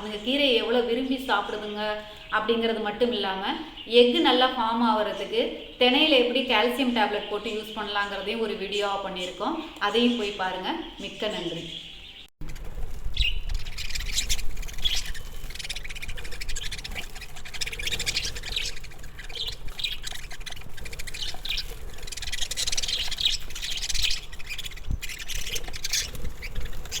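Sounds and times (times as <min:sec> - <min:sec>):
lovebirds chirping and squawking: 0:00.0 - 0:27.0.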